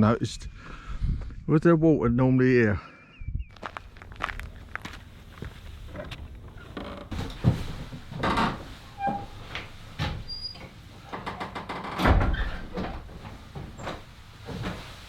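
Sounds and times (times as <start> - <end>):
footsteps outdoors: 3.5 - 8.1.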